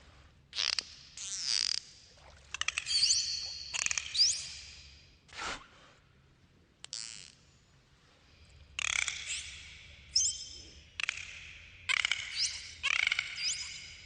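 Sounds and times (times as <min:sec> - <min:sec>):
dolphin clicks: 0:02.5 - 0:04.5, 0:11.0 - 0:13.8.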